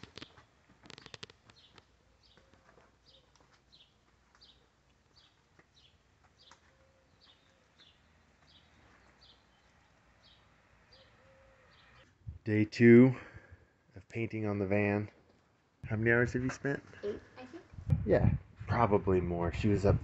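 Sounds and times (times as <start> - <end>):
small bird chirping: 0.0 - 12.1.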